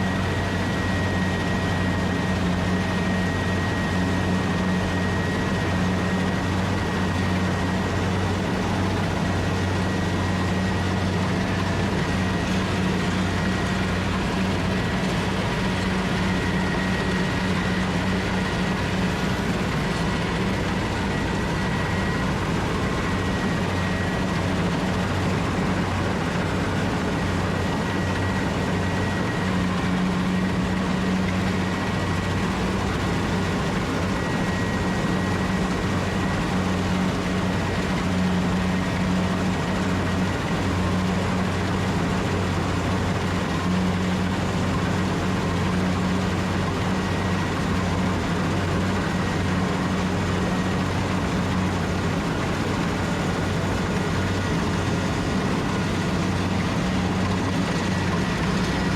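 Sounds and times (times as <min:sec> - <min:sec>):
combine harvester engine humming: 0:00.0 - 0:58.9.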